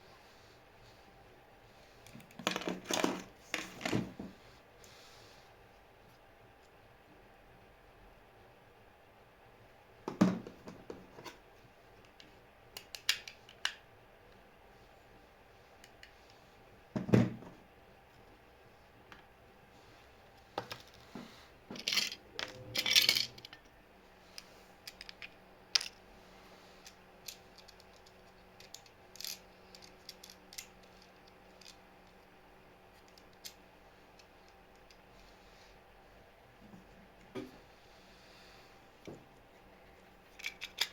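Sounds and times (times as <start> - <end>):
faint steady hum: 0.0 - 40.9
objects clattering on work surface: 2.4 - 4.4.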